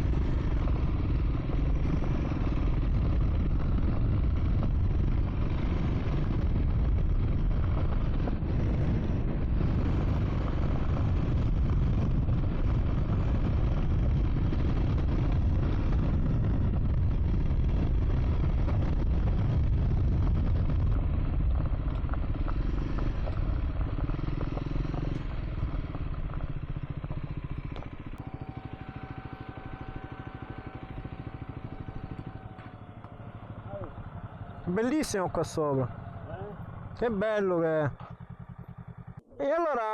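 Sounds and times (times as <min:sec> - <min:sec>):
motorcycle engine rumbling: 0:00.0 - 0:39.9
steady high tone: 0:28.2 - 0:32.8.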